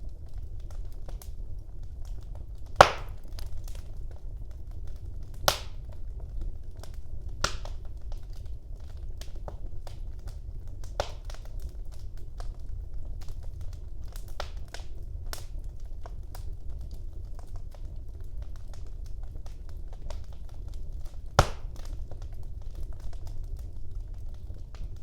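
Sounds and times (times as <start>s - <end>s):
wood fire crackling: 0.0s - 25.0s
loud fire pops: 2.1s - 8.2s, 10.2s - 12.6s, 18.4s - 25.0s.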